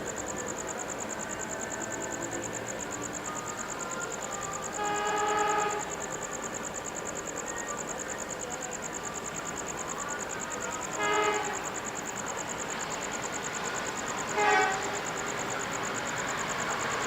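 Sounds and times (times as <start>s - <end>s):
diesel train running on rails: 0.0s - 17.0s
train horn blasts: 4.8s - 5.9s, 11.0s - 11.8s, 14.2s - 15.1s.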